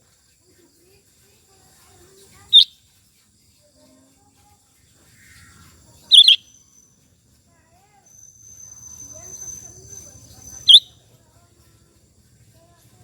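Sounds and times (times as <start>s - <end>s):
bird giving sharp high calls: 2.5s - 2.7s, 6.1s - 6.5s, 8.5s - 10.9s.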